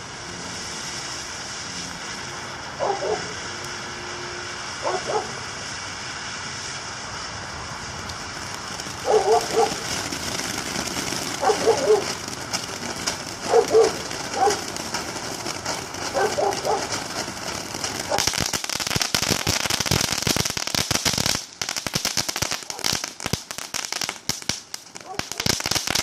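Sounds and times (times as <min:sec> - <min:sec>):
firework crackling: 0:00.0 - 0:26.0
fountain firework hissing: 0:00.0 - 0:26.0
dog barking: 0:02.8 - 0:03.3, 0:04.8 - 0:05.4, 0:09.1 - 0:09.8, 0:11.4 - 0:12.1, 0:13.5 - 0:14.6, 0:16.2 - 0:16.9, 0:25.0 - 0:25.5.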